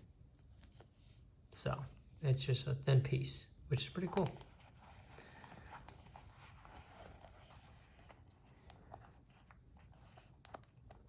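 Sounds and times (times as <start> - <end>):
leather rustling: 4.1 - 10.3.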